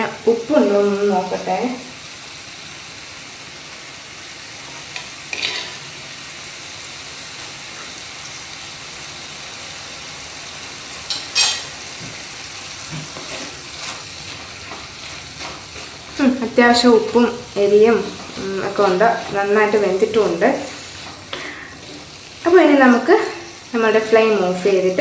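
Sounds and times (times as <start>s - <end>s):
vegetables sizzling in oil: 0.0s - 25.0s
wooden spatula scraping pot: 5.3s - 5.9s, 12.8s - 22.3s.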